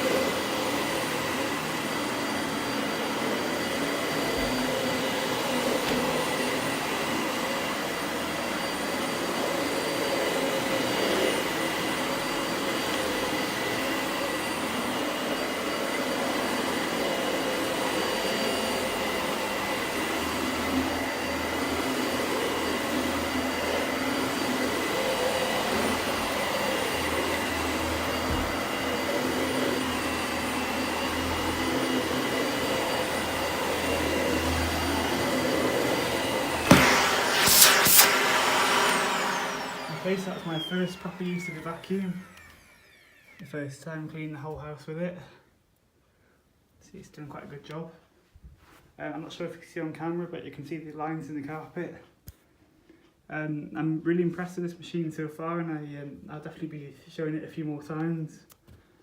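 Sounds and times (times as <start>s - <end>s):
vacuum cleaner running: 0.0s - 43.7s.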